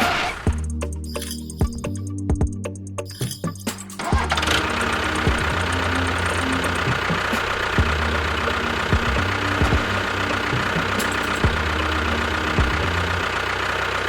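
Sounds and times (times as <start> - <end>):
engine idling: 4.0 - 14.0.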